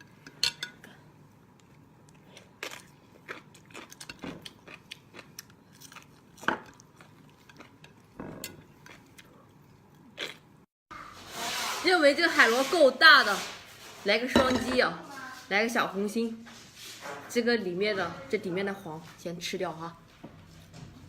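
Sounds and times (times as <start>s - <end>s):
crunchy chewing: 1.6s - 10.5s.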